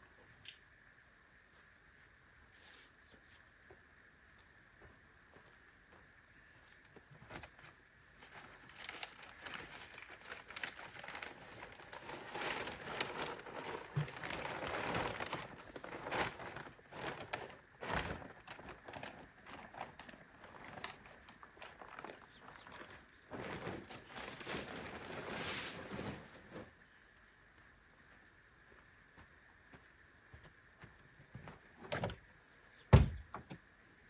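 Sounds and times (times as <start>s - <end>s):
rustling and crinkling: 4.8s - 27.0s.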